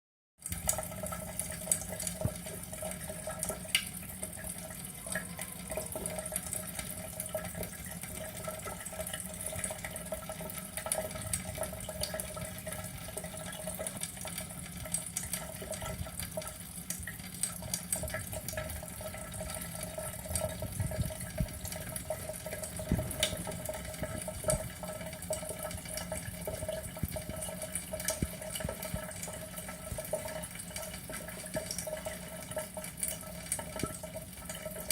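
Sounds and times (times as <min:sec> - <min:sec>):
water running: 0:00.4 - 0:34.9.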